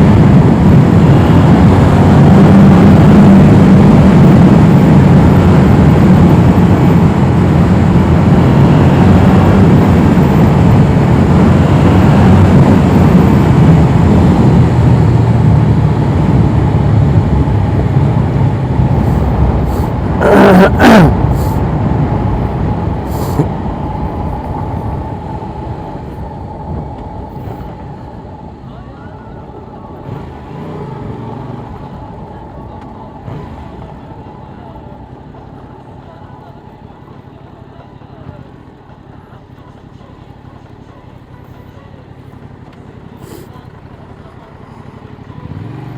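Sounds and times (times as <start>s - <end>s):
wind noise on microphone: 0.0s - 20.2s.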